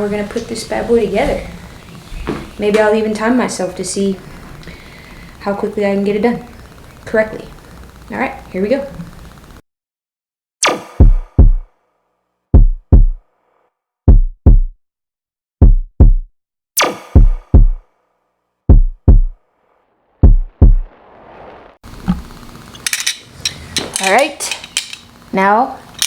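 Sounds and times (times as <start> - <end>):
deep drum-machine kicks: 11.0 - 11.7, 12.5 - 13.2, 14.1 - 14.8, 15.6 - 16.3, 17.2 - 17.8, 18.7 - 19.4, 20.2 - 20.9.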